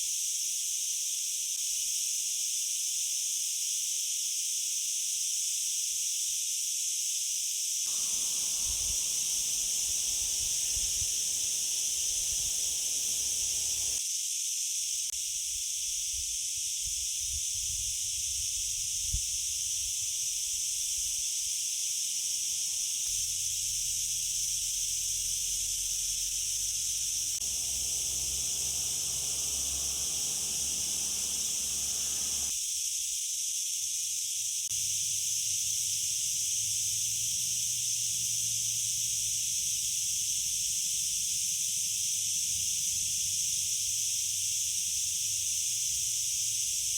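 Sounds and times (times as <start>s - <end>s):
high-pitched hiss: 7.9s - 14.0s, 16.5s - 32.9s.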